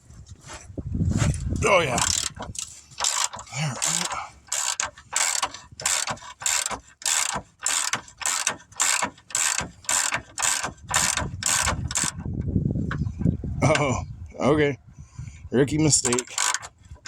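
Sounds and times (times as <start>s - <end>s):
socket ratchet clicking: 1.9s - 12.3s, 16.0s - 16.8s.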